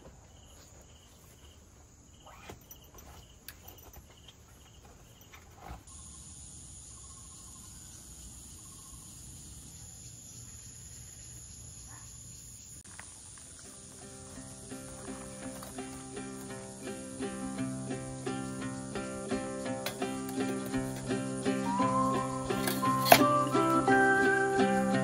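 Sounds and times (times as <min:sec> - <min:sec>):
faint background noise: 0:00.0 - 0:25.0
insect chirping: 0:00.0 - 0:25.0.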